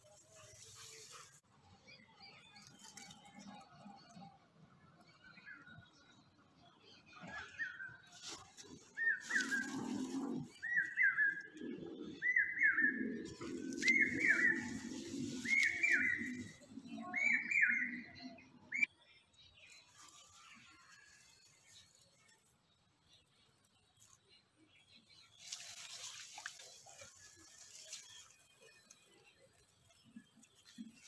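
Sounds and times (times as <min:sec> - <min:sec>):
bird whistled calls: 0:12.2 - 0:14.8, 0:15.4 - 0:16.5.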